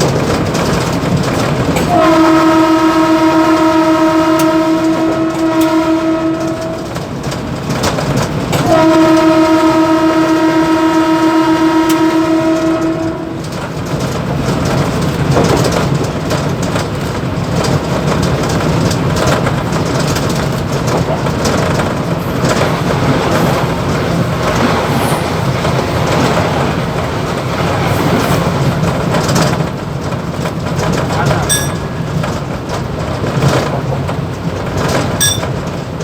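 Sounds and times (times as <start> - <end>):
train rumbling: 0.0 - 36.0
train horn blasts: 1.8 - 7.2, 8.6 - 13.6, 31.2 - 32.4.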